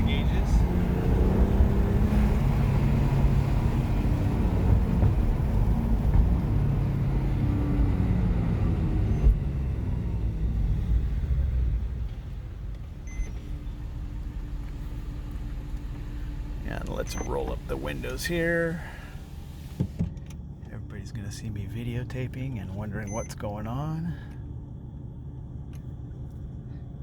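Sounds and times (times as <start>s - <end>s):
car engine and road noise: 0.0s - 27.0s
brief high beep: 23.0s - 23.4s.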